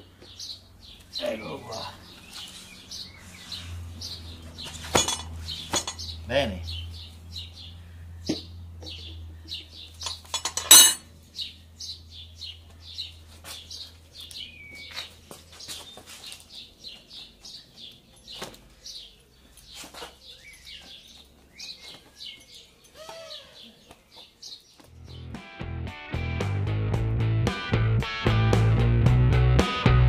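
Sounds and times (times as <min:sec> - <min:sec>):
small birds chirping: 0:00.0 - 0:25.4
metal tyre lever clink: 0:04.7 - 0:06.1, 0:10.0 - 0:11.0.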